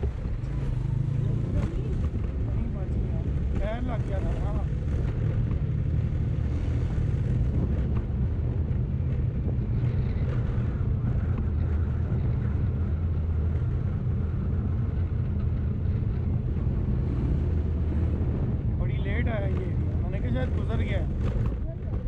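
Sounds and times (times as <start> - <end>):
motorcycle engine running: 0.0 - 22.0
wind on microphone: 4.2 - 18.9.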